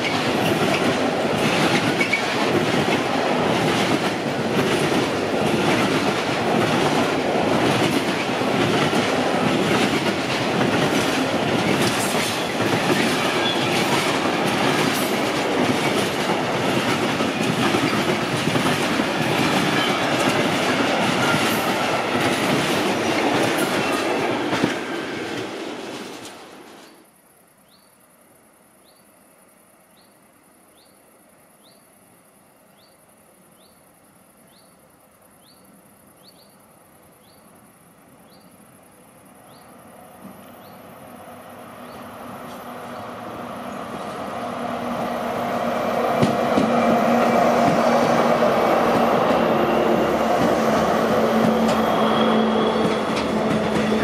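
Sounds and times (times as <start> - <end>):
freight train wheels clattering: 0.0 - 26.9, 46.0 - 54.0.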